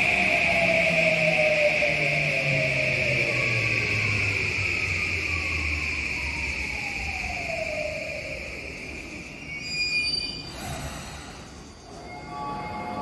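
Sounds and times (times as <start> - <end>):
air hiss: 10.3 - 12.1.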